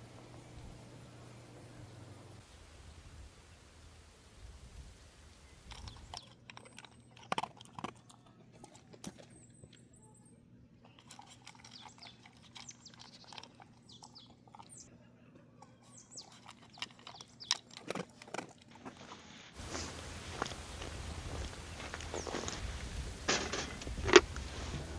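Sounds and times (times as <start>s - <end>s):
chewing and crunching: 5.4s - 10.1s, 10.7s - 24.9s.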